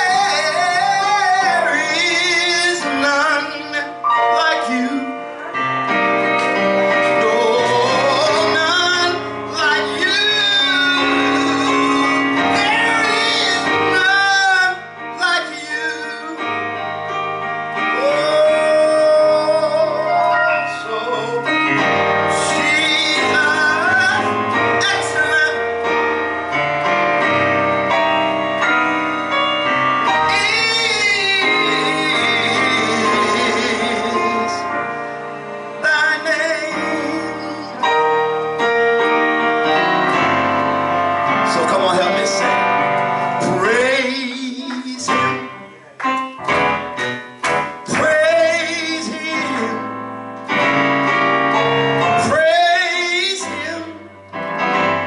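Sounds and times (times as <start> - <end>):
keyboard accompaniment: 0.0 - 55.0
man and woman singing: 30.3 - 34.6.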